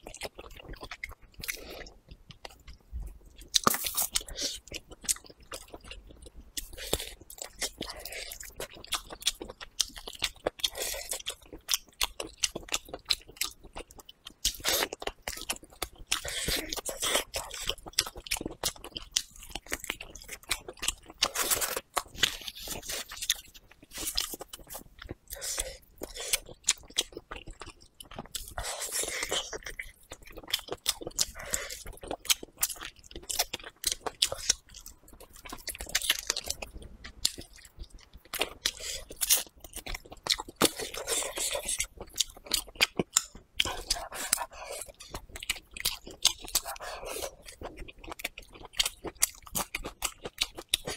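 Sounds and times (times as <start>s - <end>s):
person chewing with wet clicks: 0.0s - 50.9s.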